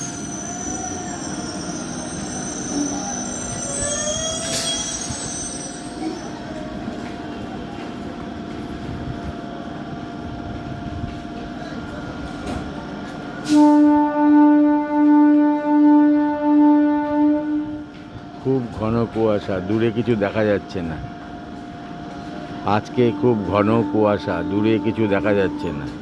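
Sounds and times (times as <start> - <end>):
train wheels squealing on rails: 0.0 - 7.0
train horn pulses: 13.4 - 18.1, 22.7 - 26.0.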